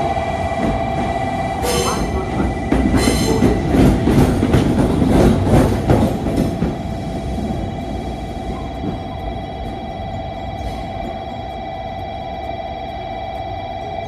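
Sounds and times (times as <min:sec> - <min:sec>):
high-pitched train squeals: 0:00.0 - 0:04.5, 0:05.6 - 0:14.0
train wheels clattering over rail joints: 0:00.0 - 0:09.9.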